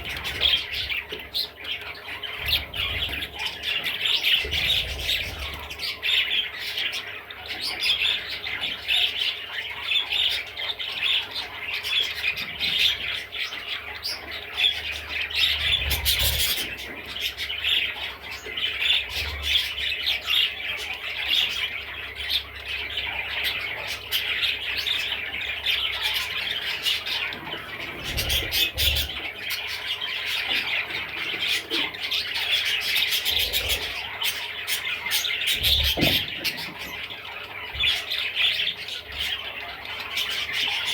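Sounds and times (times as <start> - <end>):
budgerigar chattering and warbling: 0.0 - 40.9.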